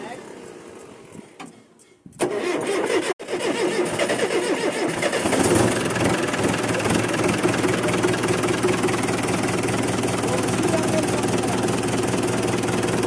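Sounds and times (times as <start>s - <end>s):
diesel engine running: 4.9s - 13.0s.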